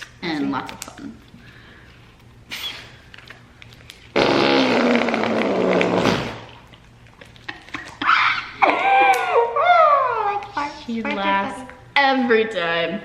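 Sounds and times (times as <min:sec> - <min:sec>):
slime fart noise: 0:04.1 - 0:06.8.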